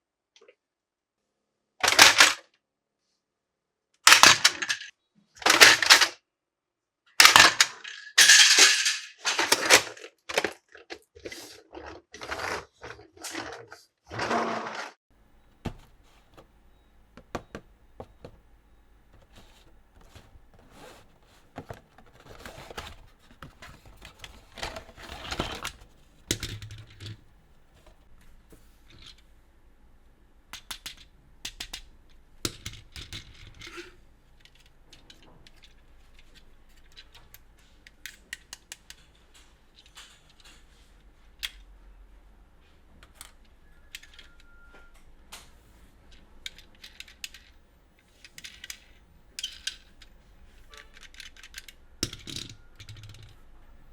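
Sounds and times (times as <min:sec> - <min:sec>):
packaging rustling: 0:15.3 - 0:27.1
plastic toy pieces clicking: 0:30.5 - 0:31.9, 0:46.4 - 0:47.5, 0:50.8 - 0:53.4.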